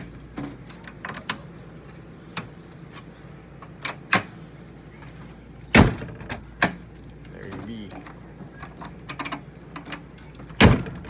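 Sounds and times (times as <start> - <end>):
key clicking in door lock: 5.8 - 11.0.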